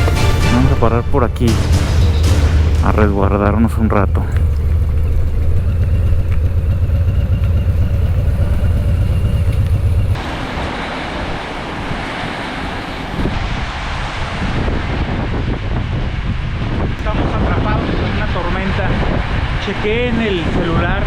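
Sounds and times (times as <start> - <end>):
steady rushing hiss: 0.0 - 21.0
motorcycle engine rumble: 1.0 - 12.5.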